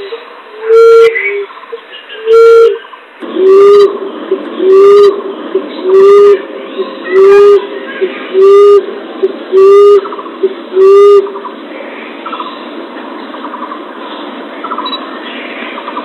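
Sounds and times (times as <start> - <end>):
dove cooing: 2.2 - 11.5.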